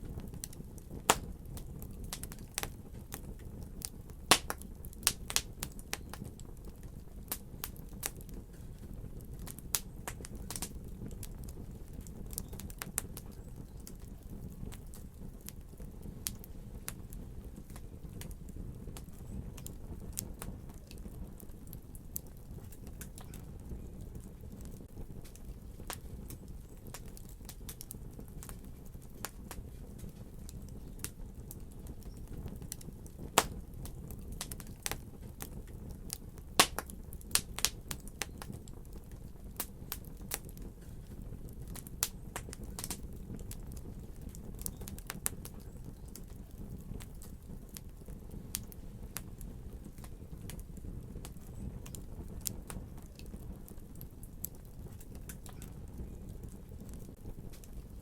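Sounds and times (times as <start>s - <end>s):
fire crackling and popping: 0.0s - 58.0s.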